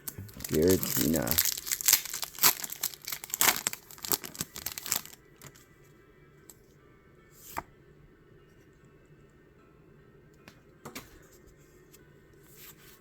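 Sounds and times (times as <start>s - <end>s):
card pack crinkling and tearing: 0.0s - 5.6s
faint background music: 0.0s - 13.0s.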